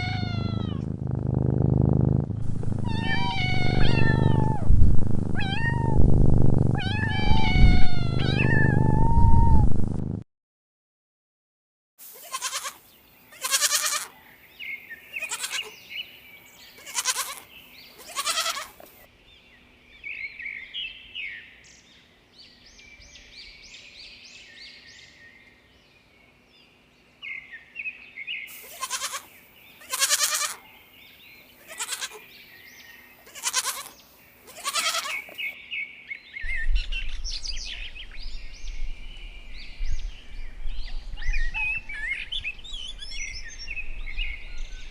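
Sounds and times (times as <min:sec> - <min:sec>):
goats bleating: 0:00.0 - 0:00.9, 0:02.8 - 0:04.6, 0:12.2 - 0:14.2, 0:15.2 - 0:15.7, 0:16.8 - 0:18.8, 0:28.6 - 0:30.6, 0:31.6 - 0:32.2, 0:33.2 - 0:35.4
small birds chirping: 0:00.0 - 0:09.1, 0:12.3 - 0:44.9.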